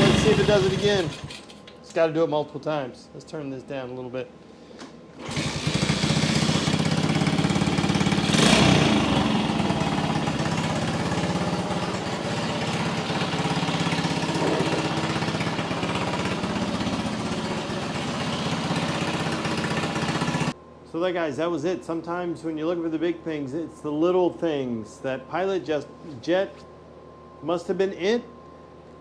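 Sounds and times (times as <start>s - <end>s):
motorcycle engine running: 0.0s - 1.5s, 5.2s - 20.6s.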